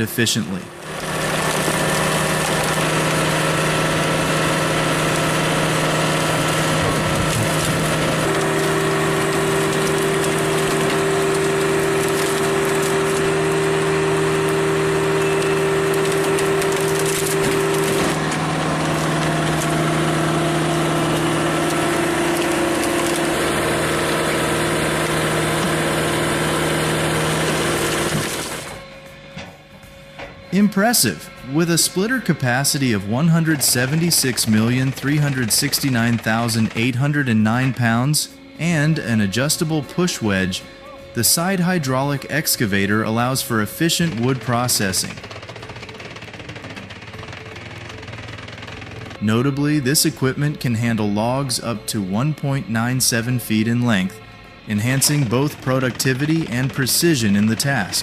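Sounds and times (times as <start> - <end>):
diesel engine running: 0.0 - 58.0
wood cracking and splintering: 0.8 - 28.8, 44.0 - 49.4.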